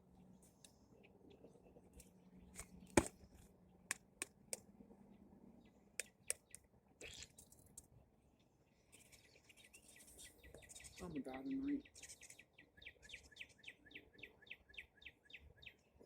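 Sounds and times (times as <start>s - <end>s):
small sharp clicks and taps: 6.0s - 6.7s.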